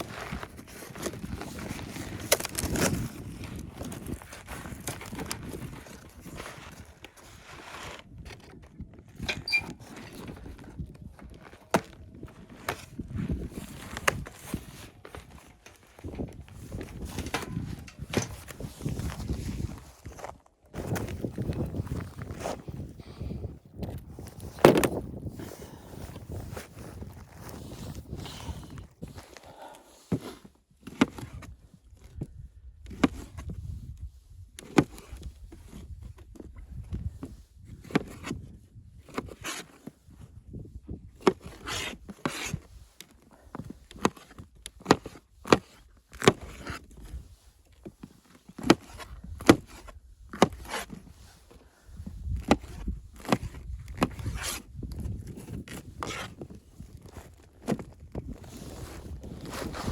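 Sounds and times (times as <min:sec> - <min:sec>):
knocks and scrapes: 0:00.1 - 0:23.0.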